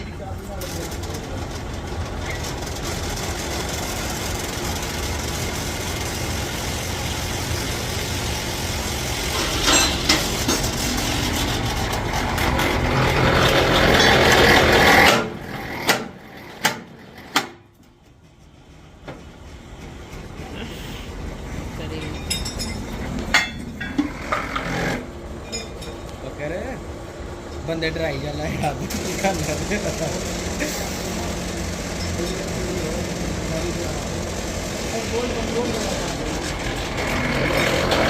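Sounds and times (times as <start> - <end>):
heavy machine motor running: 0.0 - 38.0
sharp metallic knocks: 22.0 - 24.8.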